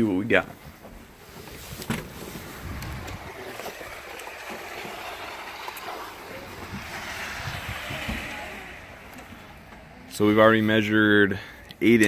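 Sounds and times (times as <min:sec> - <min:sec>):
windy hiss: 0:01.1 - 0:12.0
wind buffeting microphone: 0:01.7 - 0:10.8.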